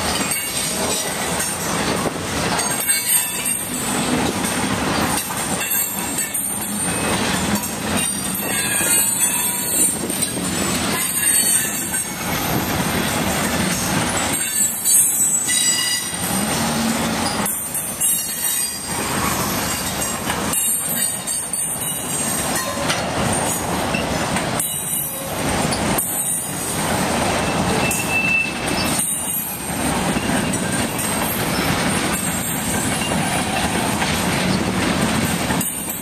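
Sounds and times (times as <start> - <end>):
freight train cars rumbling on rails: 0.0 - 36.0
high wheel squeal: 5.6 - 10.3, 13.7 - 22.8, 27.4 - 29.6.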